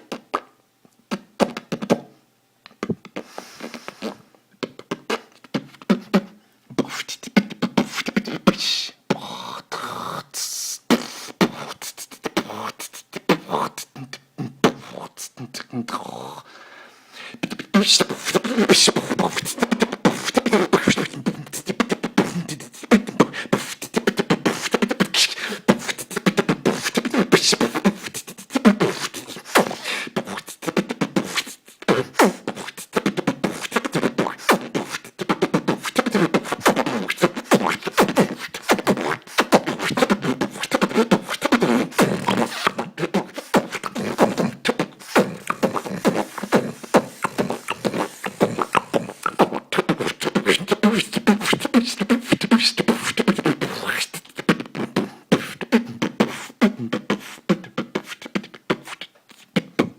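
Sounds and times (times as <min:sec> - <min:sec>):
man beatboxing: 0:00.0 - 0:00.5, 0:01.1 - 0:02.1, 0:02.7 - 0:16.5, 0:17.2 - 0:59.9
hummed vocal tones: 0:17.2 - 0:59.9.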